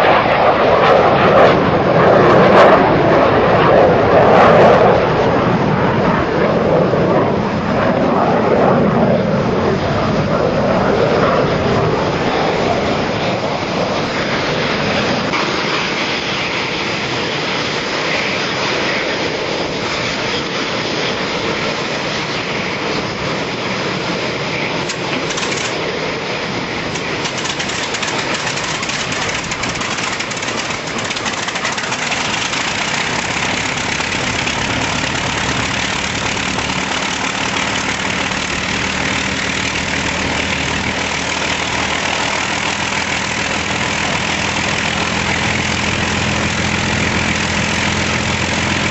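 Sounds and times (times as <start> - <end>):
aircraft piston engines running: 0.0 - 48.9.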